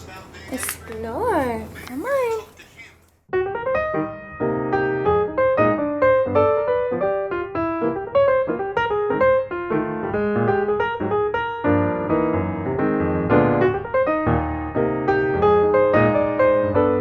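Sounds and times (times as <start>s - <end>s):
gentle piano melody: 3.3s - 17.0s.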